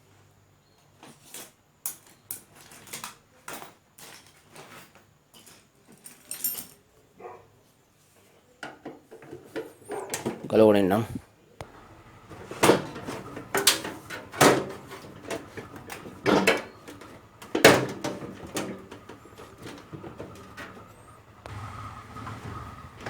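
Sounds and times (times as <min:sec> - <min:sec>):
knocks and clunks of metal parts: 0:12.2 - 0:21.2.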